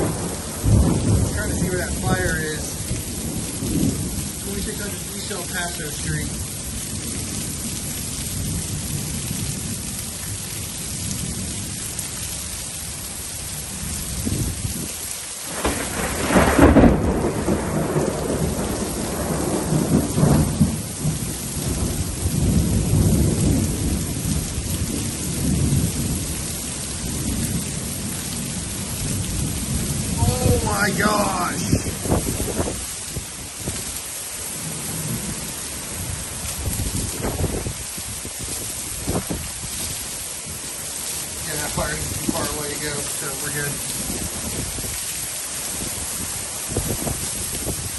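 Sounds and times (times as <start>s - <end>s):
thunderclap: 0.0s - 4.4s, 15.5s - 26.3s, 28.4s - 33.9s, 36.6s - 39.9s
rolling thunder: 0.0s - 5.5s, 15.5s - 33.9s, 36.0s - 40.0s, 43.8s - 47.9s
heavy rain: 0.0s - 47.9s.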